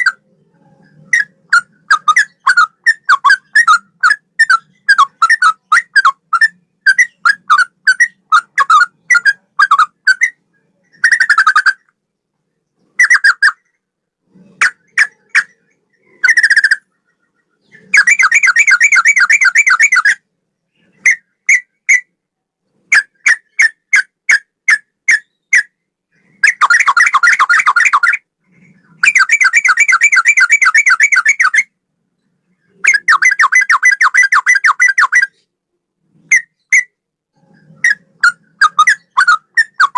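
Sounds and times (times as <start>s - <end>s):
bird whistling and rattling: 0.0s - 11.9s, 17.6s - 20.2s, 22.9s - 31.7s, 32.8s - 35.5s, 36.2s - 39.9s.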